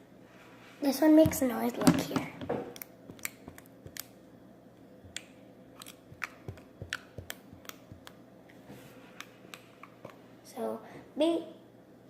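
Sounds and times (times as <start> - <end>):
slime clicking and popping: 5.1 - 8.2.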